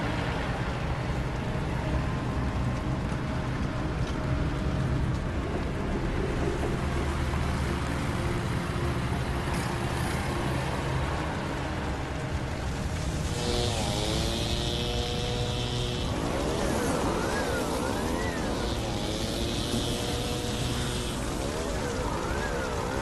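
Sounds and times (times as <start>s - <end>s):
faint held music tones: 0.0s - 23.0s
gliding musical sound: 6.0s - 23.0s.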